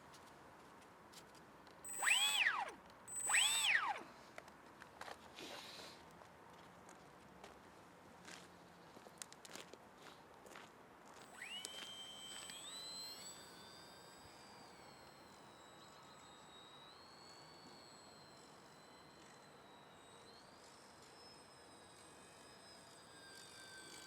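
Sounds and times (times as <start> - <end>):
model plane electric motor whine: 1.9 - 4.3, 11.2 - 24.0.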